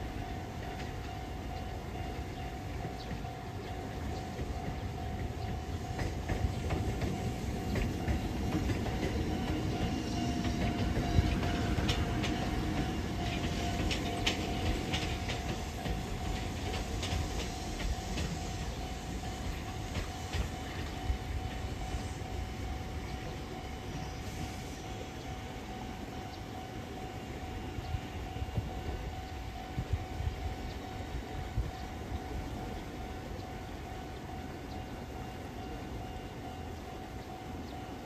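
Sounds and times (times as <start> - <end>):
train rumbling: 0.0 - 38.0
wheels clicking over rail joints: 2.2 - 21.5.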